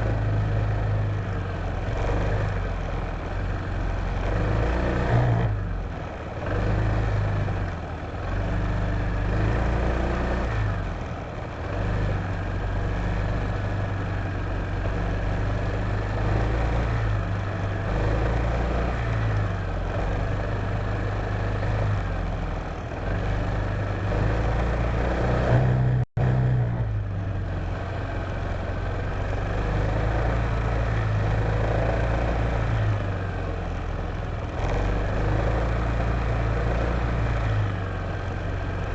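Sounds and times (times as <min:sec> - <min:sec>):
wind and road noise: 0:00.0 - 0:38.9
scooter engine running: 0:26.6 - 0:38.9.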